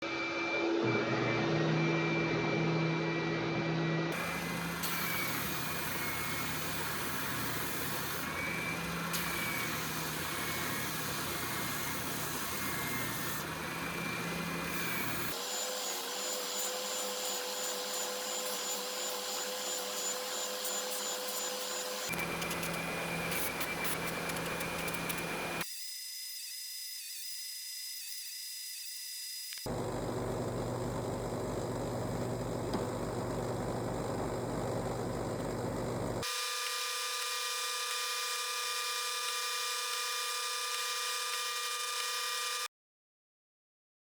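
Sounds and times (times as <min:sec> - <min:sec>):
power tools humming: 0:04.1 - 0:25.6, 0:29.6 - 0:42.7.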